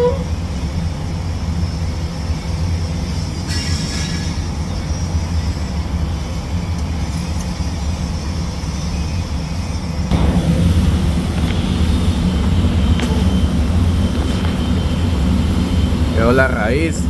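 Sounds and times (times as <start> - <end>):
hiss: 1.4 - 6.5, 10.1 - 17.0
low mechanical rumble: 10.1 - 17.0.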